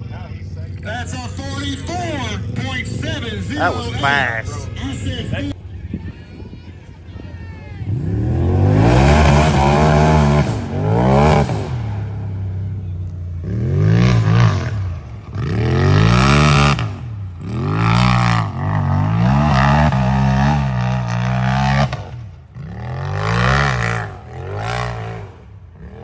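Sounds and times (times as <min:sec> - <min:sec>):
engine revving hard: 0:07.8 - 0:12.8, 0:13.4 - 0:26.0.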